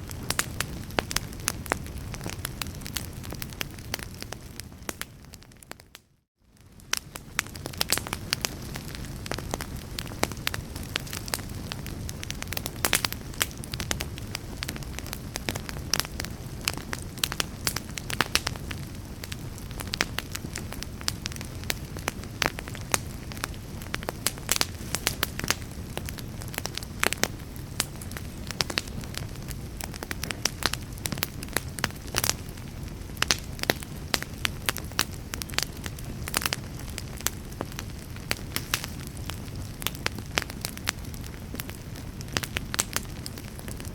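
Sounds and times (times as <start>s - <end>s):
fire crackling and popping: 0.0s - 43.9s
low rumble of burning: 0.0s - 43.9s.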